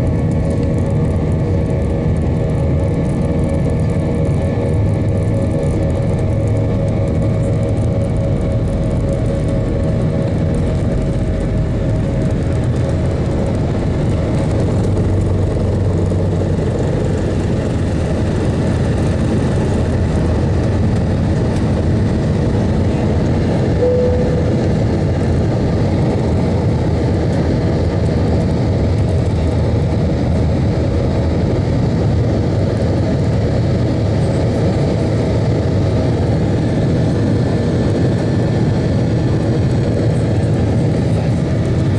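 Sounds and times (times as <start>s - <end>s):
aircraft engine rumble: 0.0s - 41.9s.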